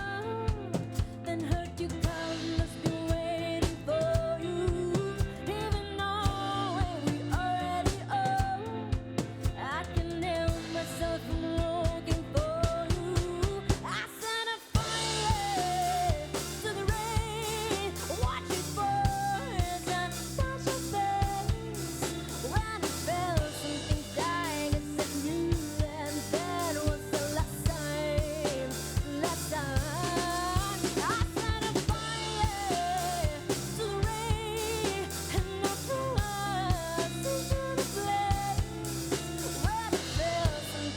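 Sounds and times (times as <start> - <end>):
drum kit beat: 0.0 - 40.9
band playing a song: 14.8 - 40.9.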